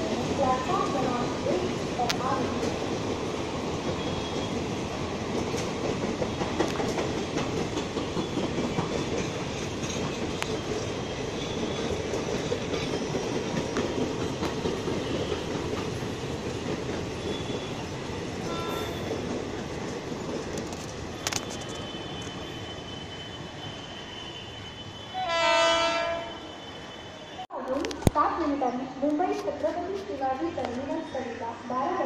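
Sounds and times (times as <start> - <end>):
train wheels rolling on rail: 0.0 - 32.0.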